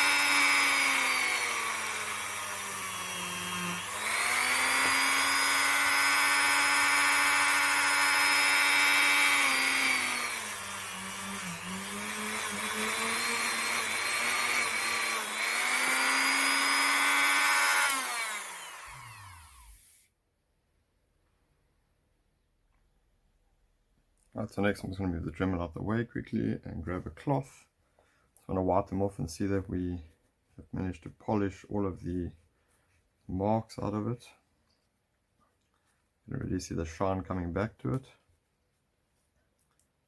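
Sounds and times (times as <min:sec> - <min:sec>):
rotary tool whine polishing metal: 0:00.0 - 0:20.0.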